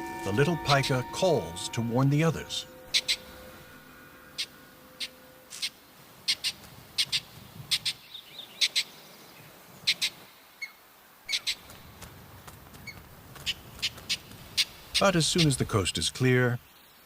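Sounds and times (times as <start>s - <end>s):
pika alarm calls: 0.0s - 3.5s, 4.4s - 9.0s, 9.8s - 11.8s, 12.8s - 15.7s.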